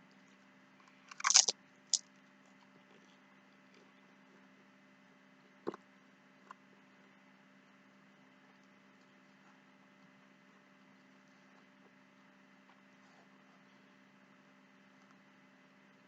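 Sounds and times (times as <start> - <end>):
food crunching: 1.1 - 1.5.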